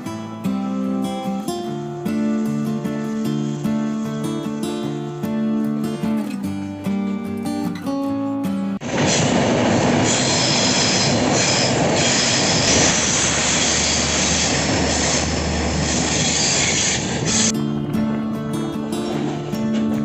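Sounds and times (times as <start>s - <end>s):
wheels squealing on rails: 1.6s - 5.6s, 8.8s - 17.6s, 18.7s - 20.0s
train rolling on track: 1.6s - 6.2s, 8.8s - 20.0s.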